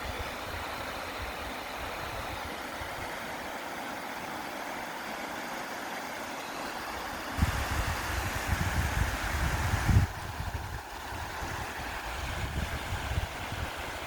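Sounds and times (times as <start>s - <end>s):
creek water rushing: 0.0s - 14.0s.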